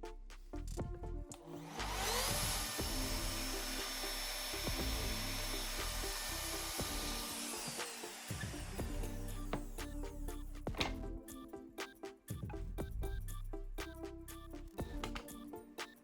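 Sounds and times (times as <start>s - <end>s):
electric wood router whining: 1.6s - 9.8s.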